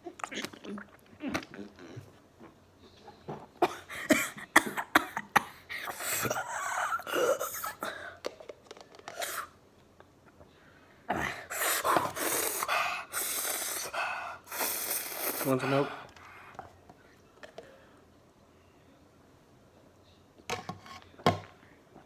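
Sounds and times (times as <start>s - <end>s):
person coughing: 3.6s - 8.1s
person breathing noisily: 11.2s - 16.6s.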